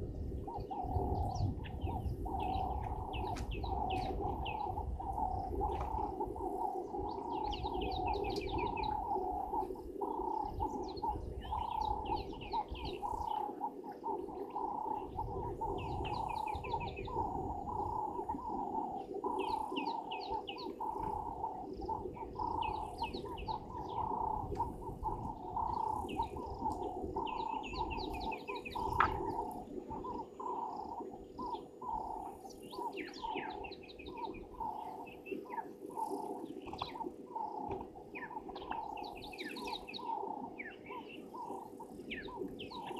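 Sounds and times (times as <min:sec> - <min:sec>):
bird cooing chorus: 0:00.0 - 0:42.9.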